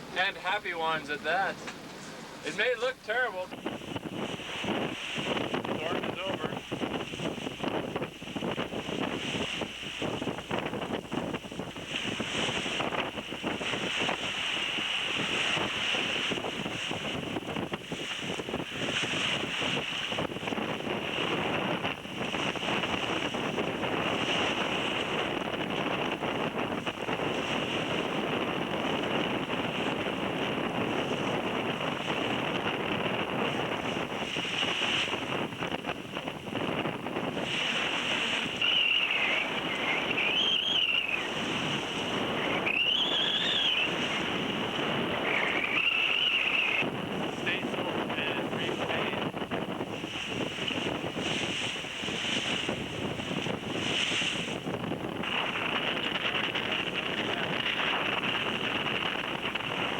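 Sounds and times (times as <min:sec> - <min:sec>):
sea and waves rushing: 0:00.0 - 0:59.9
wind buffeting microphone: 0:00.0 - 0:59.9
wavering high whistle: 0:38.6 - 0:41.3, 0:42.5 - 0:44.0, 0:45.4 - 0:46.8.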